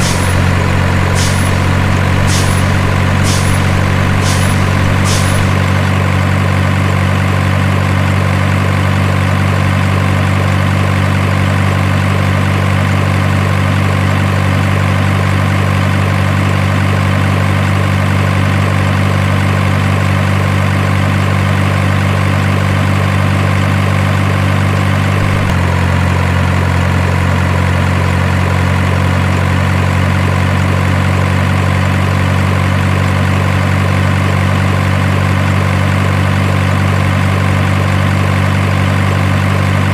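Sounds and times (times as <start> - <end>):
heavy truck engine idling: 0.0 - 26.1.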